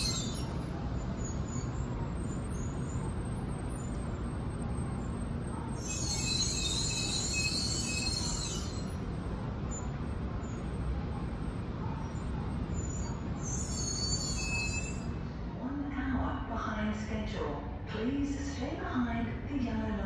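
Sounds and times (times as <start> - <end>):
train low rumble: 0.0 - 20.0
high-pitched squealing: 5.6 - 9.0, 12.5 - 15.1.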